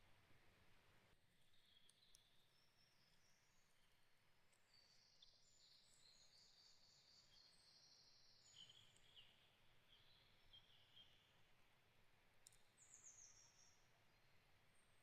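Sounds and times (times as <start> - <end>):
songbird trilling and chirping: 4.6 - 11.3, 12.4 - 14.3.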